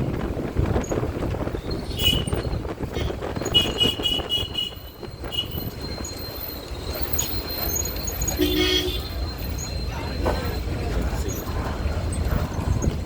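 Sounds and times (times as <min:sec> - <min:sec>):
street traffic rumble: 0:00.0 - 0:13.0
vehicle horn beeping: 0:01.9 - 0:05.8, 0:08.2 - 0:09.3.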